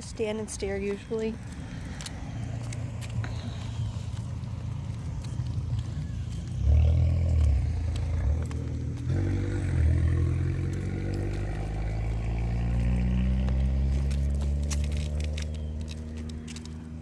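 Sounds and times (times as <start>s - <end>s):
car driving past: 5.5s - 16.9s.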